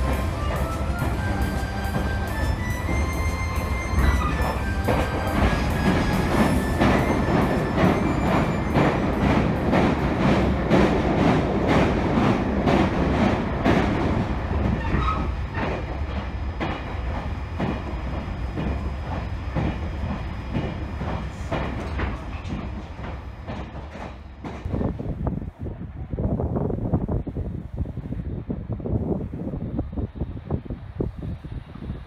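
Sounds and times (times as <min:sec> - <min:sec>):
train wheels clickety-clack: 0:00.0 - 0:25.5.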